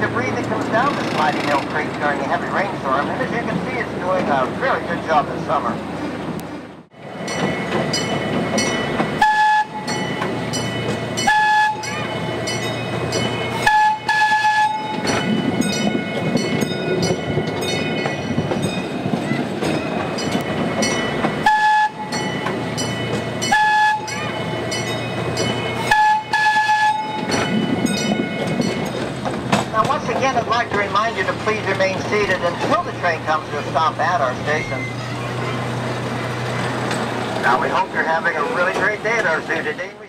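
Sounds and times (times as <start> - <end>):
wheels clicking over rail joints: 0.0 - 6.5, 7.1 - 40.0
miniature train rumbling: 0.0 - 40.0
train whistle toots: 9.2 - 9.8, 11.2 - 12.0, 13.6 - 15.0, 21.4 - 22.1, 23.5 - 24.2, 25.8 - 27.2.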